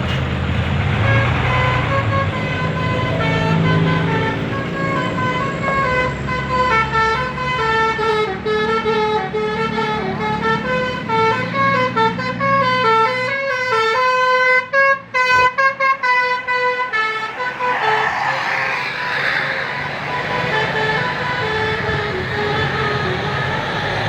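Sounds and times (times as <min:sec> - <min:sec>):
bus engine running: 0:00.0 - 0:24.0
multi-tone musical air horn: 0:01.0 - 0:24.0
rushing noise: 0:16.2 - 0:24.0.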